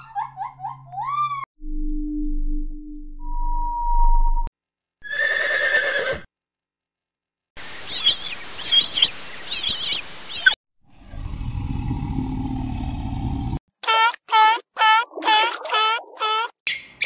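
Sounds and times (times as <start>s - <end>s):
high bird chirps: 7.8s - 10.6s.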